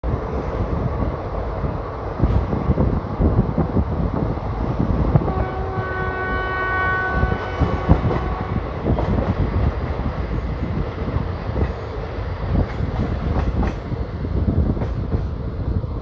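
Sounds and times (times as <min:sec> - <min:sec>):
train horn: 0:05.2 - 0:08.9
train wheels clattering: 0:07.3 - 0:15.4.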